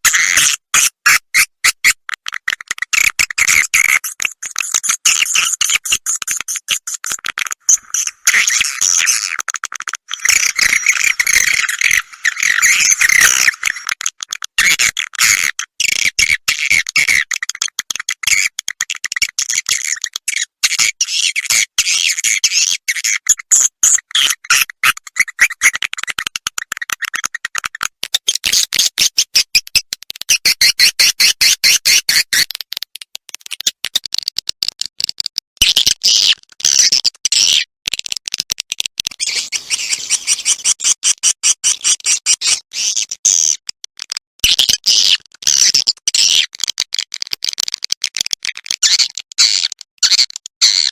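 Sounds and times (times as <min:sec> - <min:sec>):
swiftlet twittering chirps and clicks: 0:02.7 - 0:09.2, 0:10.0 - 0:15.0, 0:39.1 - 0:41.1.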